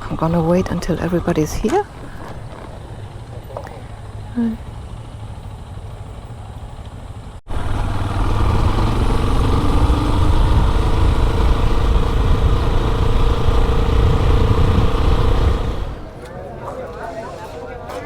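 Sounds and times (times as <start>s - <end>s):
motorcycle accelerating: 2.0s - 16.2s
motorcycle engine running: 2.1s - 16.1s.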